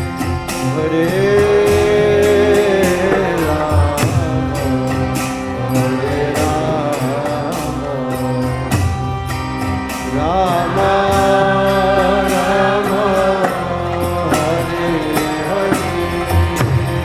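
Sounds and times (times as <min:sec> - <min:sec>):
devotional chanting: 0:00.0 - 0:17.0
percussion strokes: 0:00.0 - 0:17.0
sustained instrumental tones: 0:00.0 - 0:17.0.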